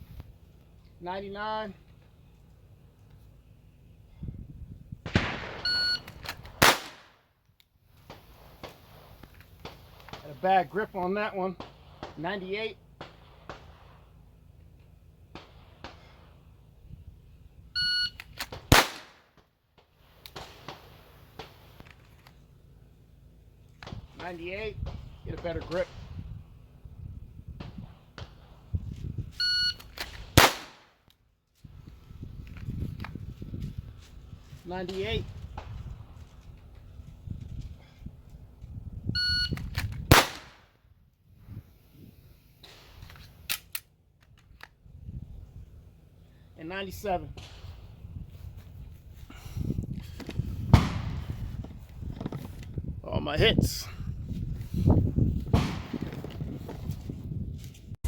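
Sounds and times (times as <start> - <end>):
pistol shot: 5.1 - 5.8, 6.5 - 7.2, 18.5 - 19.3, 30.2 - 30.9, 40.1 - 40.7, 50.7 - 51.2, 55.5 - 56.0
shot timer beep: 5.7 - 6.1, 39.2 - 39.6
shot timer beeps: 5.7 - 6.1, 17.8 - 18.2, 29.4 - 29.8, 39.2 - 39.6.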